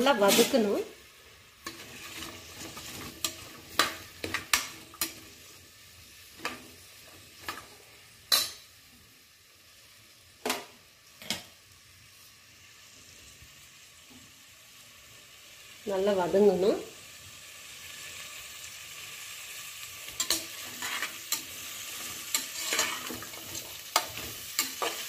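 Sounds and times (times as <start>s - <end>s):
food sizzling in oil: 0.0s - 25.0s
ladle clinking and scraping pot: 20.2s - 25.0s.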